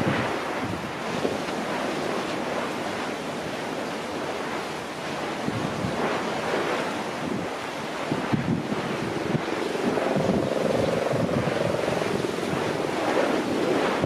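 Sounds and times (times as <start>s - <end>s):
sea water rushing: 0.0s - 14.0s
wind buffeting microphone: 0.0s - 14.0s
wind rushing: 7.2s - 14.0s.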